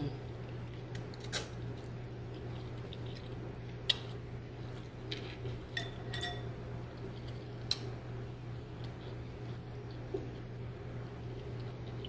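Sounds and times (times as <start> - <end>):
steady low hum: 0.0 - 12.0
wet eating noises: 0.2 - 5.8, 6.9 - 12.0
utensil clinking against dish: 5.7 - 6.5.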